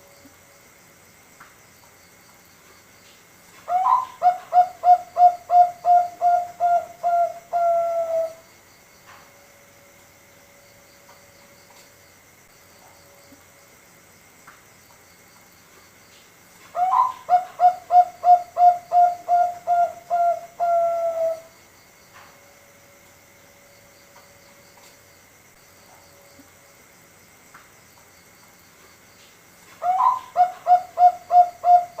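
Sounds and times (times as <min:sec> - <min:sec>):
faint steady tone: 0:00.0 - 0:03.0, 0:03.6 - 0:32.0
dove cooing: 0:03.7 - 0:08.4, 0:16.7 - 0:21.5, 0:29.8 - 0:32.0.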